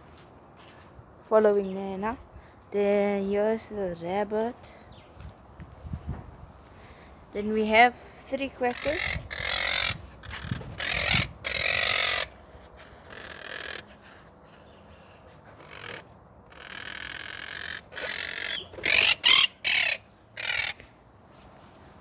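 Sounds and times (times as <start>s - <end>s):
parrots squawking: 8.6s - 14.2s, 15.5s - 20.9s.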